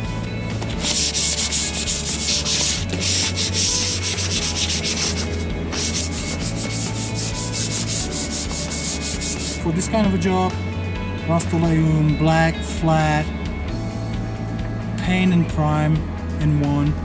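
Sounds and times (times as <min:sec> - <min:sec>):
rhythmic scraping on metal: 0:00.6 - 0:09.7.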